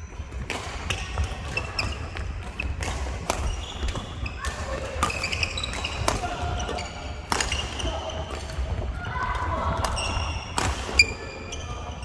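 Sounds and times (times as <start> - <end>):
shoes squeaking on court floor: 0.0 - 8.9, 9.9 - 12.0
rackets striking shuttlecock: 0.4 - 8.6.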